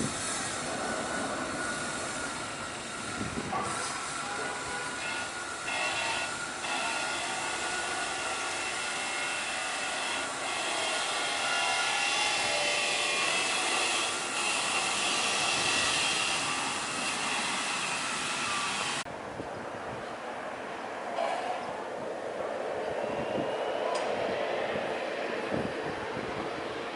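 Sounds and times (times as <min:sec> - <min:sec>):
jet airliner engines running: 0:00.0 - 0:10.5, 0:13.6 - 0:26.9.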